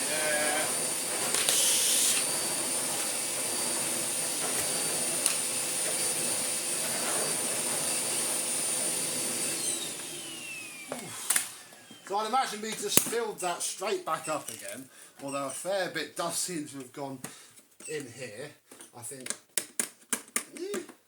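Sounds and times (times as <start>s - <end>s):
vacuum motor winding down: 0.0s - 12.2s
vacuum cleaner whining: 0.0s - 14.6s.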